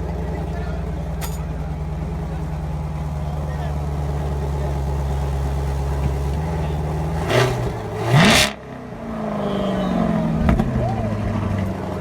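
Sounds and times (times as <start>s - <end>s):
car engine idling: 0.0s - 12.0s
car engine revving: 4.0s - 12.0s.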